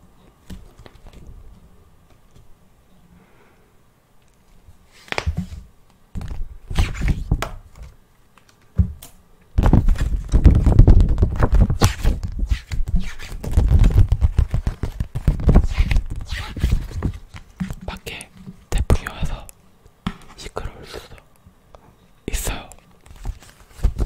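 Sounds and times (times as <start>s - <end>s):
rapid clicks and thuds: 9.6s - 17.8s.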